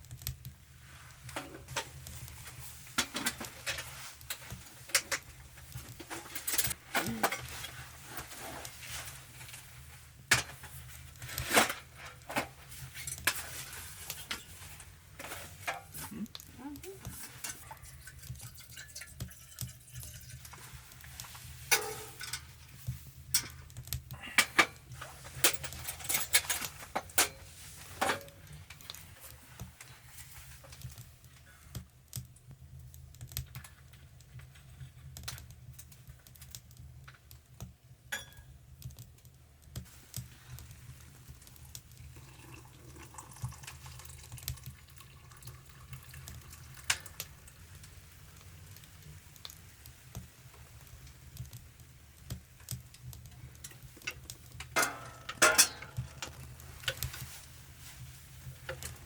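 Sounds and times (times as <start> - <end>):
sharp irregular clicks and knocks: 31.6 - 40.7.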